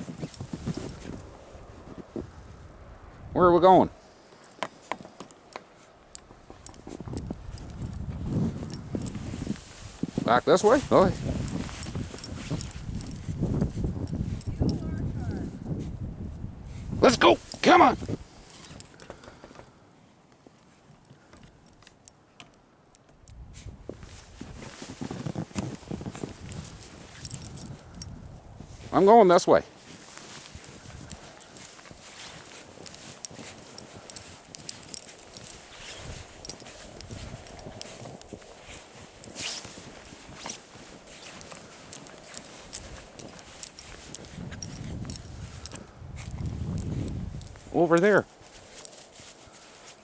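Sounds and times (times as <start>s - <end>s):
faint jingling clicks: 0.0s - 1.4s, 4.4s - 15.8s, 16.6s - 19.7s, 20.6s - 23.4s, 24.4s - 50.0s
footsteps crunching through snow: 0.0s - 2.3s, 6.5s - 15.1s, 23.9s - 27.8s, 28.6s - 50.0s.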